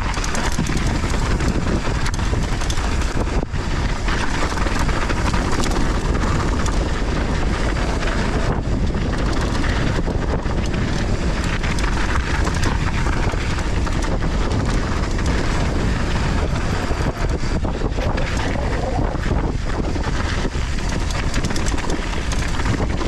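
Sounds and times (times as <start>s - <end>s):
bike rattling over bumps: 0.0s - 23.0s
tyres rolling over loose soil: 0.0s - 23.0s
wind rush over microphone: 0.0s - 23.0s.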